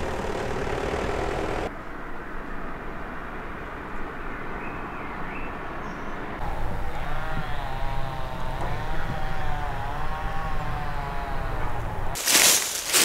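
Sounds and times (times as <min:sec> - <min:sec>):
motor running with wavering whine: 0:00.0 - 0:01.7, 0:06.4 - 0:12.2.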